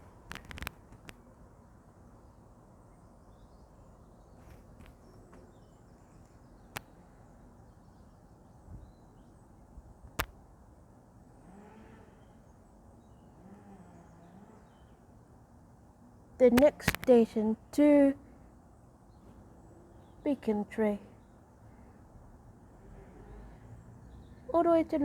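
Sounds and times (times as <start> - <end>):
sharp clicks: 0.0 - 1.2, 10.1 - 10.4, 16.5 - 17.2
faint outdoor background rumble: 0.0 - 25.0.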